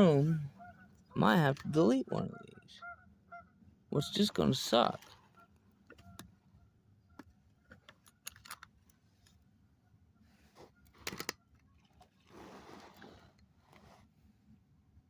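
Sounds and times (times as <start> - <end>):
short rustle: 12.1 - 14.3.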